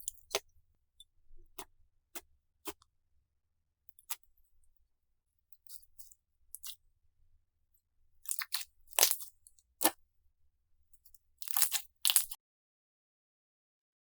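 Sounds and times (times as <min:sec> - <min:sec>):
slime clicking and popping: 0:08.3 - 0:10.0, 0:11.4 - 0:12.4
slime crackling softly: 0:08.3 - 0:10.0, 0:11.4 - 0:12.4.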